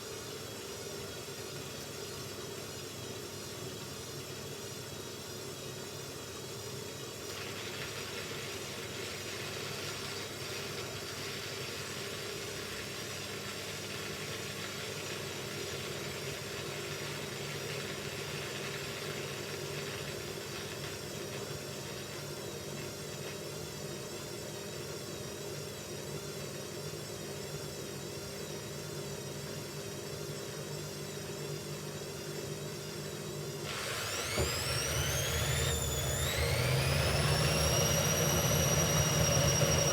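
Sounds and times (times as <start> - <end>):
washing machine motor whining: 33.6 - 39.9.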